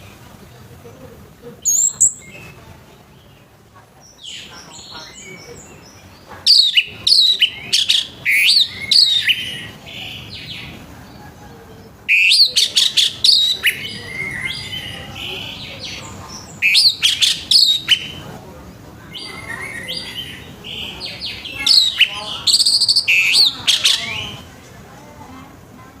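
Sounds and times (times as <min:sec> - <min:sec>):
thrush singing whistled notes: 0:04.1 - 0:10.7, 0:12.0 - 0:18.3, 0:19.1 - 0:24.5.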